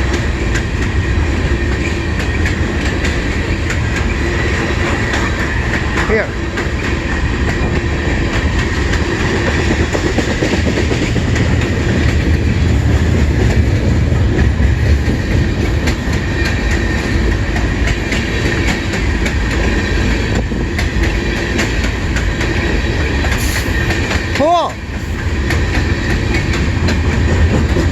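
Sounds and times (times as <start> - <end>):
train rumbling past: 0.0 - 27.9
wheels clacking over rail joints: 0.1 - 27.9.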